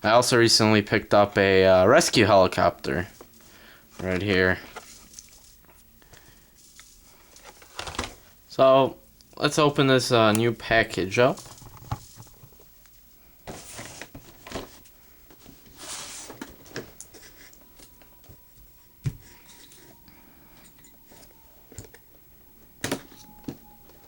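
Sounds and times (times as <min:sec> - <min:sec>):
package rustling and scraping: 0:11.4 - 0:12.7, 0:13.4 - 0:17.7.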